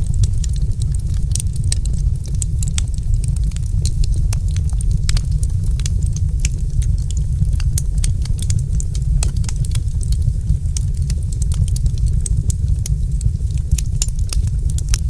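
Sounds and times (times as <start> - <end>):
deep rumble: 0.0 - 15.0
wood fire crackling and popping: 0.0 - 15.0.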